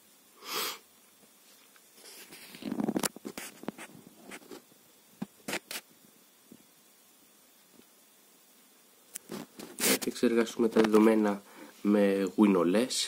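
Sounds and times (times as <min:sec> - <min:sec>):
rustling and scraping: 0:01.3 - 0:05.9, 0:09.2 - 0:12.0.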